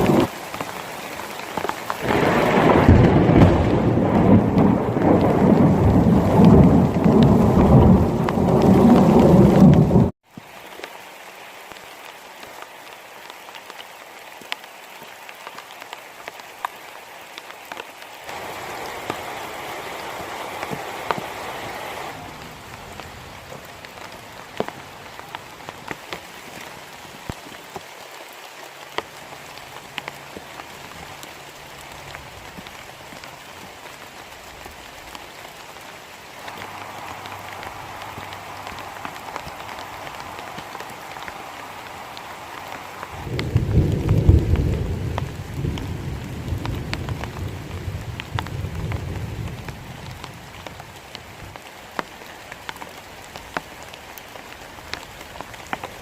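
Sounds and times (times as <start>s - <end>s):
heavy rain falling: 0.0s - 56.0s
deep rumble of thunder: 2.0s - 10.1s, 43.2s - 50.1s.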